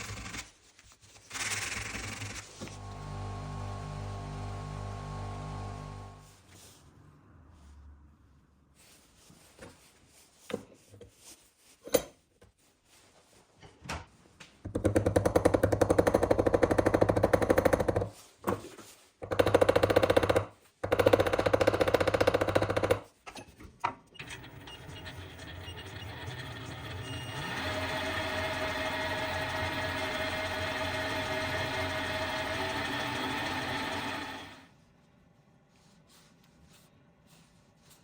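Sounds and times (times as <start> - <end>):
power tool hammering: 26.7 - 34.6.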